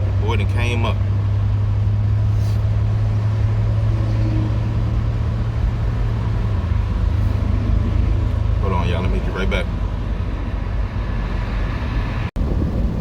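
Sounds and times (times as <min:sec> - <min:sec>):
engine and road drone: 0:00.0 - 0:13.0
wind noise: 0:09.7 - 0:13.0.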